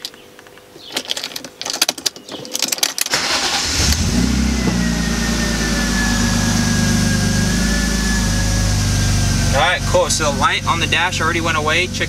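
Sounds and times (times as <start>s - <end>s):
engine starter cranking: 2.8s - 6.1s
car engine idling: 3.1s - 12.0s
thin steady whine: 4.3s - 12.0s.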